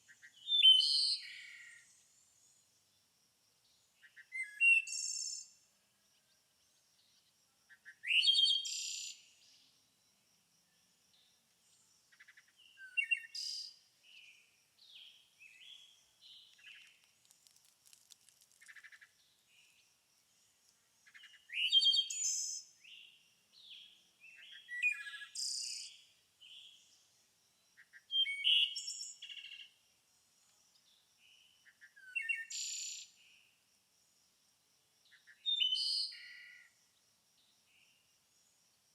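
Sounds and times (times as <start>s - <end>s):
songbirds singing: 0.0s - 9.9s, 10.6s - 33.5s, 35.0s - 38.9s
soft bird chirps and twitters: 11.2s - 27.1s, 30.7s - 33.2s.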